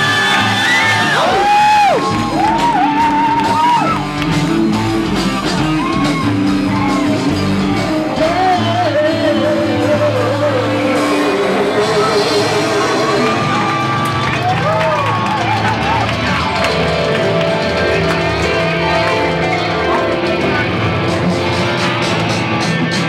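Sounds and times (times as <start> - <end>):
rock band playing live: 0.0 - 23.0
man singing: 4.3 - 13.8.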